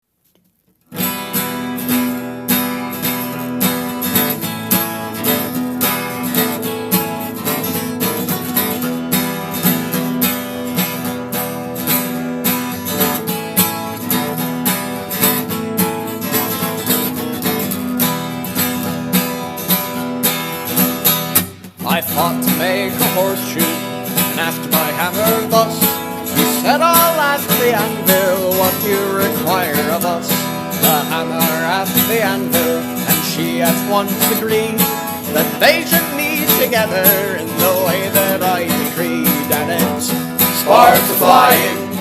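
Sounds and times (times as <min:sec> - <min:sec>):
acoustic guitar strumming: 0:00.8 - 0:42.0.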